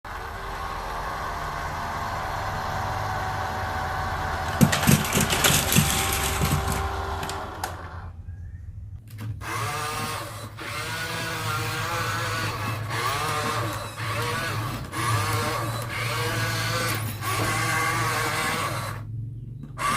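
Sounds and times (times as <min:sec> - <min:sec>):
clicking and rattling: 0:04.5 - 0:07.8
small electric motors whirring: 0:09.4 - 0:19.1.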